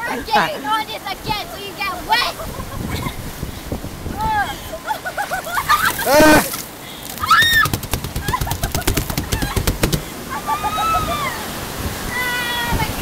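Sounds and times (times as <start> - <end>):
people shrieking and yelping: 5.4 - 6.6, 7.2 - 7.8, 10.3 - 11.5
person shouting: 6.1 - 6.5
rapid sharp clicks or rattles: 7.1 - 10.2
shrill high scream: 7.2 - 7.7, 10.4 - 11.4.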